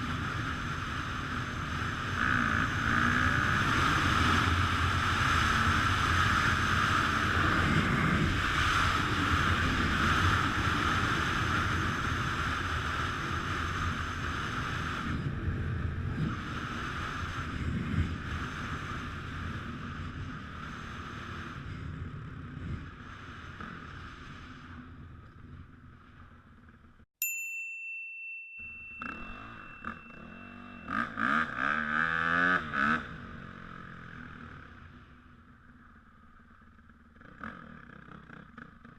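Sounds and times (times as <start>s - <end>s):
dirt bike riding: 0.0s - 38.9s
steady high beep: 27.8s - 32.1s.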